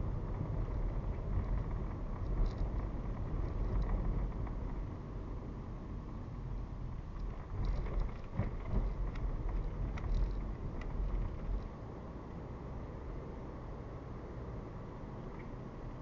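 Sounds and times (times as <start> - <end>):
car tyre and engine rumble: 0.0 - 16.0
small clicks and ticks: 0.3 - 4.9, 7.0 - 11.8.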